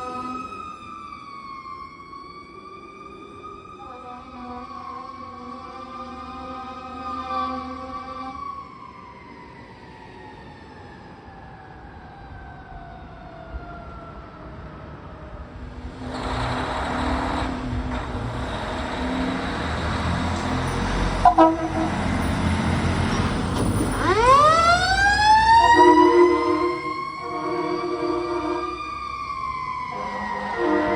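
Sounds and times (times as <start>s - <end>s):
fire truck siren wailing: 0.0s - 16.0s, 17.0s - 30.9s
truck passing loudly: 15.8s - 30.9s.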